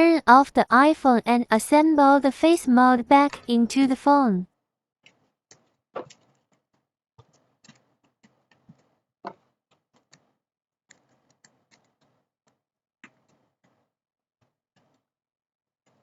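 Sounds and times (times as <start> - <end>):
small parts and tools clicking: 5.0 - 13.9.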